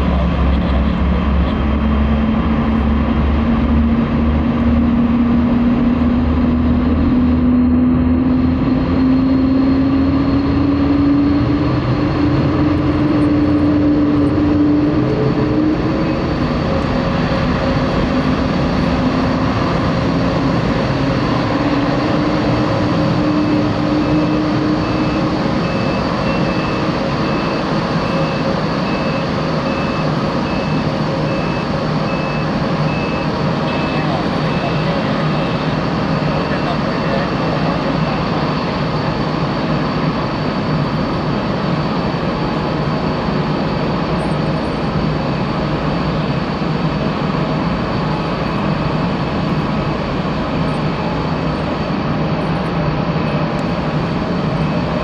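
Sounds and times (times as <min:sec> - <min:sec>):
jet engines whining: 0:00.0 - 0:55.0
high beeps: 0:24.0 - 0:35.6.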